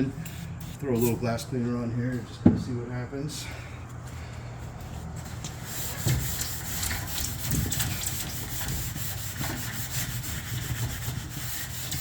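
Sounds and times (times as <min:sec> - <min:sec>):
abrasive pad scrubbing metal tube: 0:05.5 - 0:12.0.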